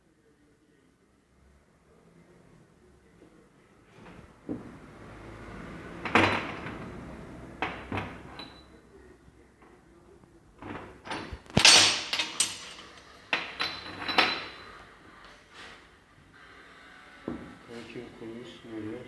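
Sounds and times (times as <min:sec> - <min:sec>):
metal parts knocking and clinking: 0:10.6 - 0:14.6.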